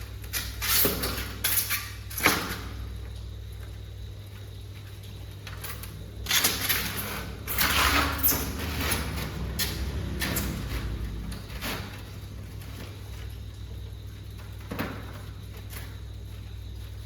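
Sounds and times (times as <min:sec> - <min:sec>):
objects scraping and clattering: 0:00.0 - 0:02.7, 0:05.1 - 0:13.6.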